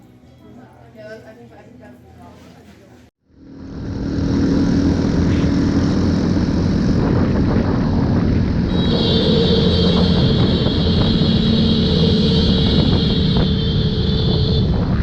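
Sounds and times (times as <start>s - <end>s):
engine drone: 3.2s - 15.0s
high steady tone: 3.3s - 15.0s.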